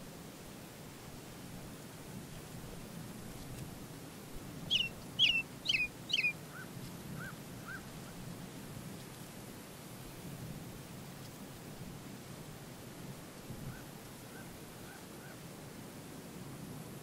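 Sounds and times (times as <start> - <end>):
low background noise: 0.0 - 17.0
bird chirping: 4.7 - 6.4.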